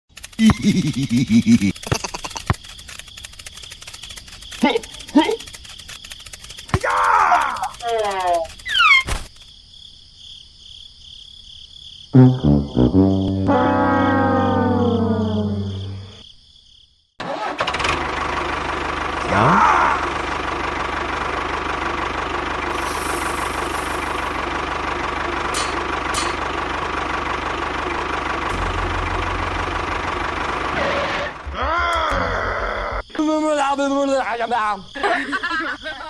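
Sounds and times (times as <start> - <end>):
engine running: 0.2 - 6.6, 12.2 - 16.2, 17.2 - 31.6
music: 12.2 - 16.2.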